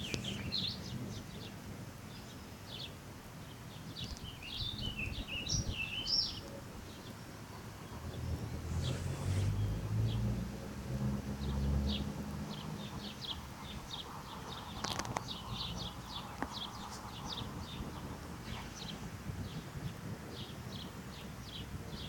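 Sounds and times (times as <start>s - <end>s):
small birds chirping: 0.0s - 22.0s
low rumble: 7.8s - 14.6s.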